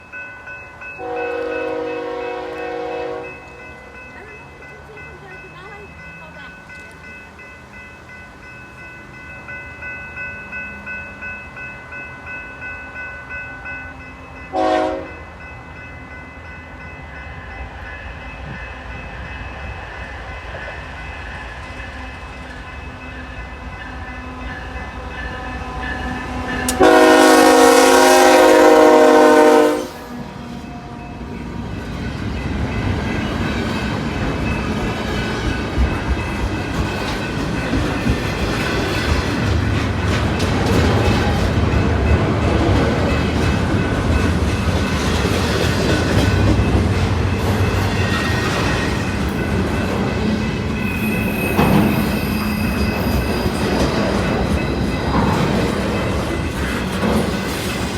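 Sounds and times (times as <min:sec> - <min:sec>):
train rumble: 0:00.0 - 0:57.9
locomotive air horn: 0:01.0 - 0:03.4, 0:14.5 - 0:15.2, 0:26.7 - 0:30.2.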